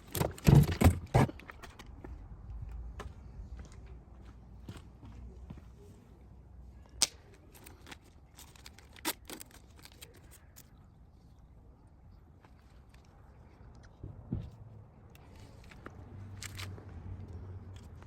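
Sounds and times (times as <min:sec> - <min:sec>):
light rattling handling noise: 0:00.0 - 0:02.0, 0:07.0 - 0:10.8.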